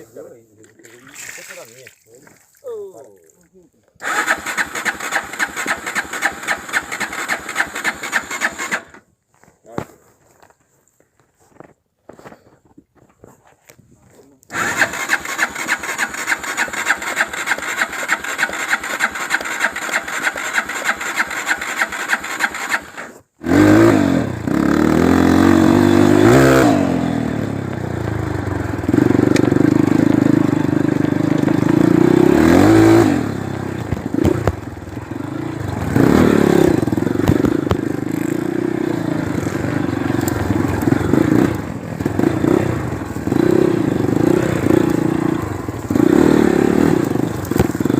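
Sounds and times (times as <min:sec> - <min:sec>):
electric starter cranking engine: 0:04.0 - 0:09.0, 0:14.5 - 0:23.1
motorcycle engine revving: 0:04.0 - 0:09.0, 0:14.5 - 0:47.9.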